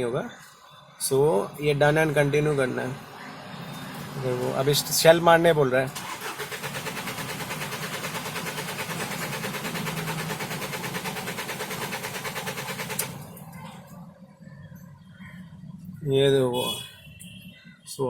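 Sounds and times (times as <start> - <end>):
starter motor cranking engine: 5.9 - 13.3.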